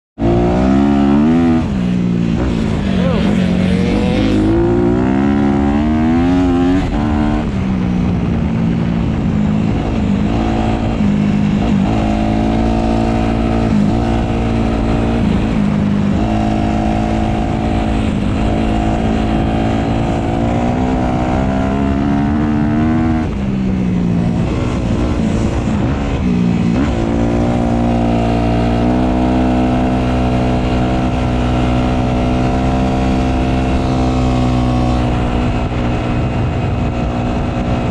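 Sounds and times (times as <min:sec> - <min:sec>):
dirt bike engine revving: 0:00.2 - 0:07.5.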